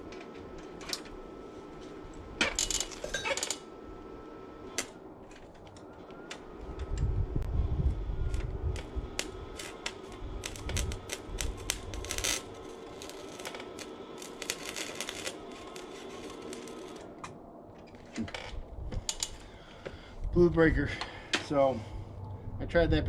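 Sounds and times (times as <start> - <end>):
welder humming: 0.0 - 20.0
wire welder sputtering and crackling: 2.4 - 3.7, 4.6 - 6.8, 7.9 - 19.5.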